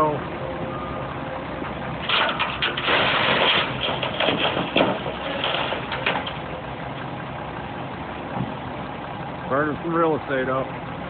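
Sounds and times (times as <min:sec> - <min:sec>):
backhoe engine running under load: 0:00.0 - 0:11.0
soil and stones scraping and clattering: 0:02.0 - 0:06.5.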